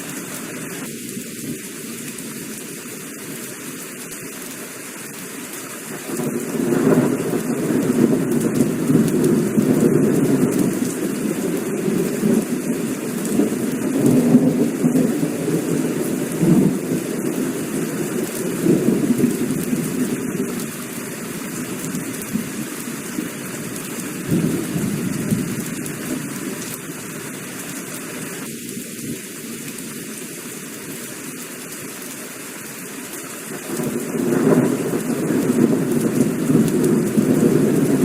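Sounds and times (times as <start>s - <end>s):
heavy rain pouring: 0.0s - 38.0s
thunder rolling: 6.2s - 20.7s, 33.8s - 38.0s.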